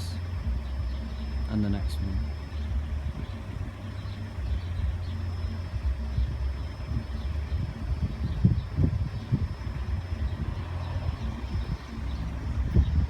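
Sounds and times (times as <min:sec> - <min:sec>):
low thumps: 0:00.0 - 0:13.0
vehicle engine idling: 0:00.0 - 0:13.0.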